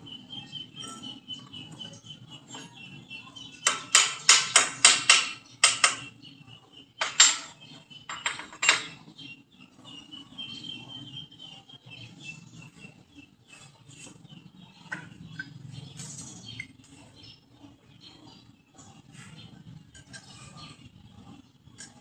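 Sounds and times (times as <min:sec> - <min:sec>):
hammer striking metal: 0:03.6 - 0:06.1, 0:07.0 - 0:09.0.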